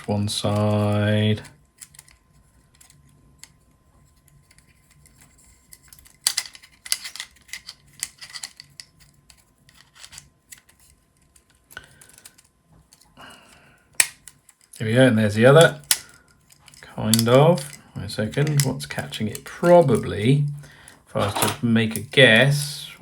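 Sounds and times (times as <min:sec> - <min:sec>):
plastic parts clicking together: 0:01.7 - 0:03.6, 0:04.2 - 0:13.1, 0:13.8 - 0:14.8, 0:15.5 - 0:20.2.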